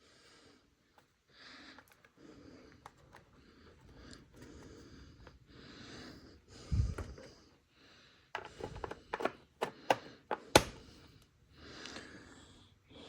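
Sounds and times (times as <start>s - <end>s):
sharp clicks and knocks: 8.4s - 10.8s.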